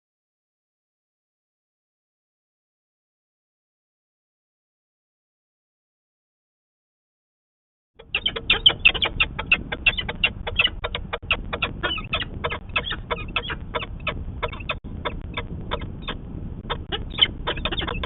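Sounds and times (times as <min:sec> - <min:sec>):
falcon cacking calls: 0:08.0 - 0:18.0
low steady rumble: 0:08.0 - 0:18.0.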